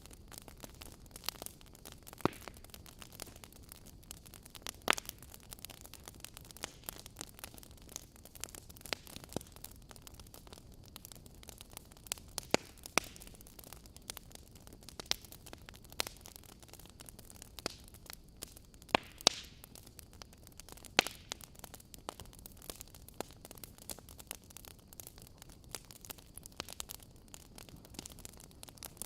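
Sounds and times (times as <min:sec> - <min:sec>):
logs crackling and popping: 0:00.0 - 0:29.0
soft steady fire hiss: 0:00.0 - 0:29.0.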